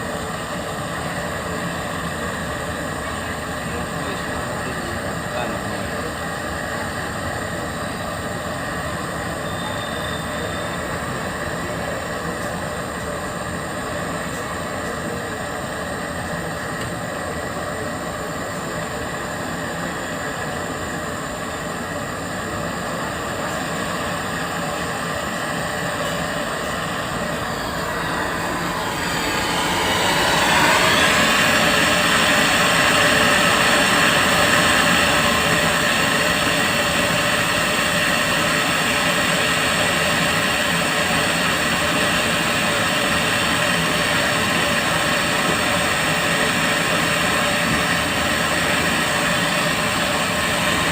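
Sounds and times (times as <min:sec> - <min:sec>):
rushing machine noise: 0:18.8 - 0:50.9.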